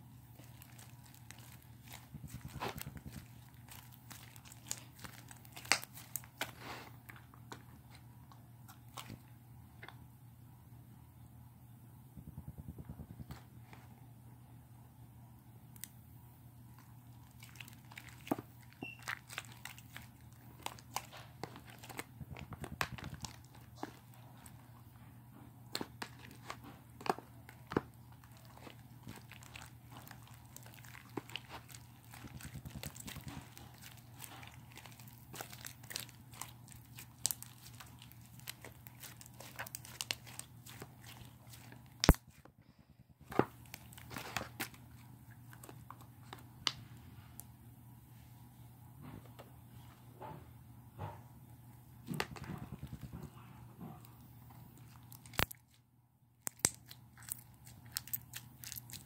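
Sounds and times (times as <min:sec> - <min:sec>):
slime squishing with sticky pops: 0:00.3 - 0:06.6, 0:16.8 - 0:24.7, 0:25.6 - 0:42.4, 0:43.2 - 0:46.8, 0:54.1 - 0:55.8, 0:56.4 - 0:59.0.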